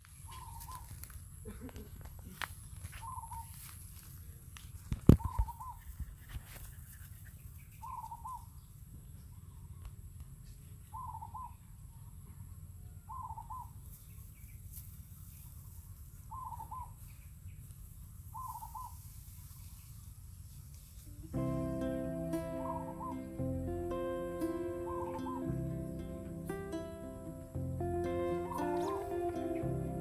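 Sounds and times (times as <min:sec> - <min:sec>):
bird wavering call: 0:16.3 - 0:16.9, 0:18.4 - 0:19.0, 0:22.2 - 0:23.4, 0:24.4 - 0:26.1, 0:28.1 - 0:30.0
low steady hum: 0:21.2 - 0:30.0.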